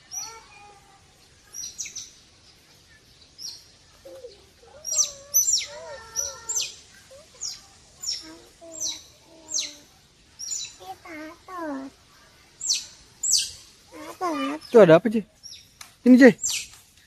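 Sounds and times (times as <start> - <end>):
otters chirping: 3.4 - 11.9, 12.6 - 15.8.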